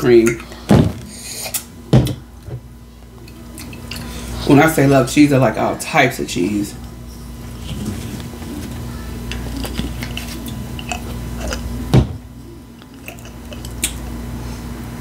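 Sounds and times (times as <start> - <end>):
chewing and biting food: 9.2 - 11.8, 12.8 - 14.2.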